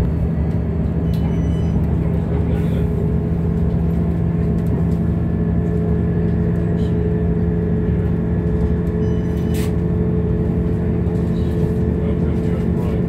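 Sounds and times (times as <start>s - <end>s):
constant low hum: 0.0s - 13.0s
train rumbling: 0.0s - 13.0s.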